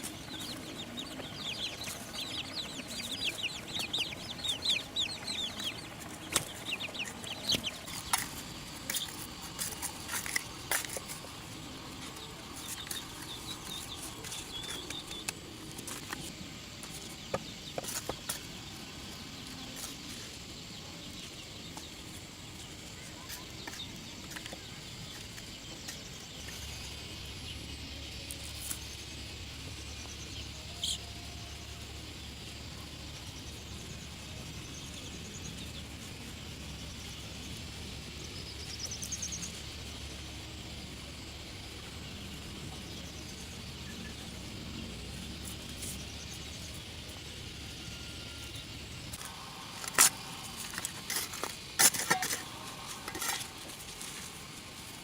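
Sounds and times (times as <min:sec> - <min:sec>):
low steady rumble: 0:00.0 - 0:15.7.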